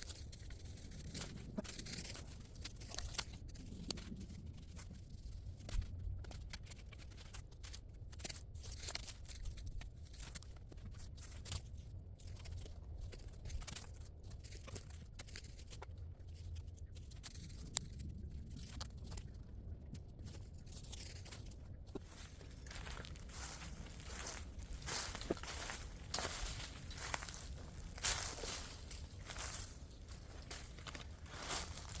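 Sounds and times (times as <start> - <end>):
rustling and crunching: 0.0 - 32.0
steady low rumble: 16.9 - 32.0.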